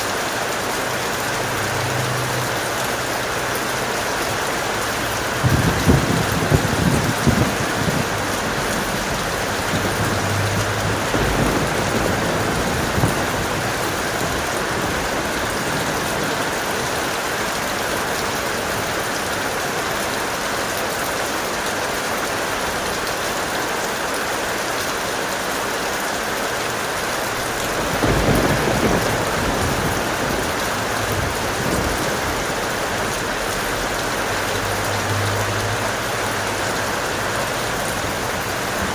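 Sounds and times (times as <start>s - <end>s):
heavy rain: 0.0s - 38.9s
thunder rumbling: 4.3s - 18.8s, 27.3s - 38.9s.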